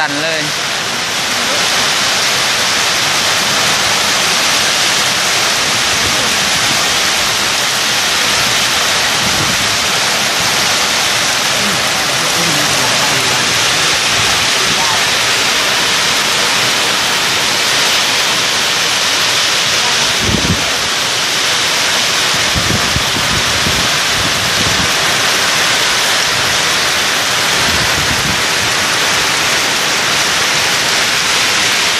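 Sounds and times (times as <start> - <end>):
heavy rain falling: 0.0 - 31.9.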